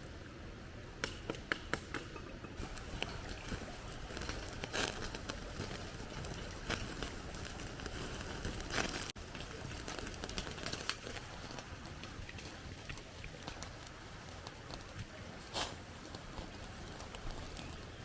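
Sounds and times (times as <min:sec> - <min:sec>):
crackly bursts: 0:02.6 - 0:18.0
rustling and crinkling: 0:02.6 - 0:18.0.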